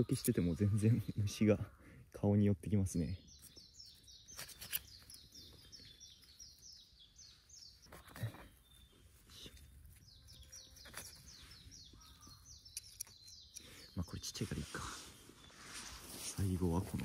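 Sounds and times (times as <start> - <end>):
small bird singing: 0.0 - 17.0
hands rustling in grass: 4.2 - 12.6, 14.2 - 17.0.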